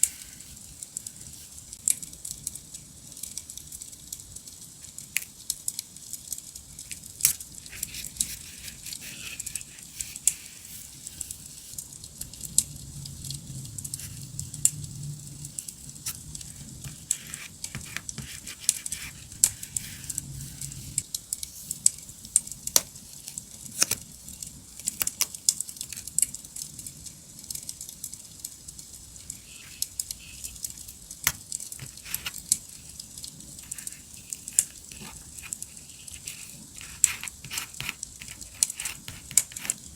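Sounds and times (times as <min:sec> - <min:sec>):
paper and stickers handling: 0:00.0 - 0:01.6, 0:06.9 - 0:11.8, 0:15.6 - 0:21.9, 0:22.7 - 0:24.1, 0:29.1 - 0:39.9.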